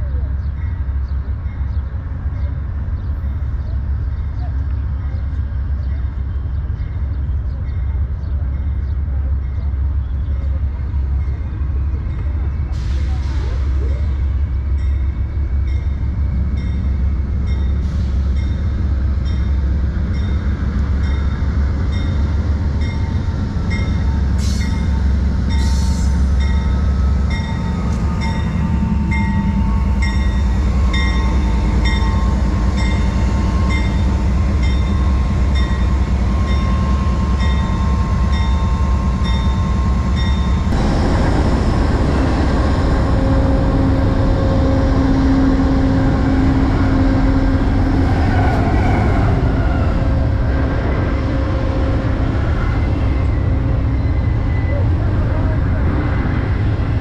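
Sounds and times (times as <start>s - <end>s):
diesel locomotive rumble: 0.0s - 57.0s
rushing noise of passing train: 0.0s - 57.0s
train brake squeal: 23.9s - 26.3s.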